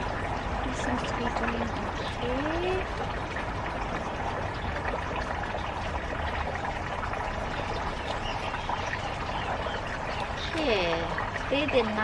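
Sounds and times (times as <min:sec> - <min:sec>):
running water: 0:00.0 - 0:12.0.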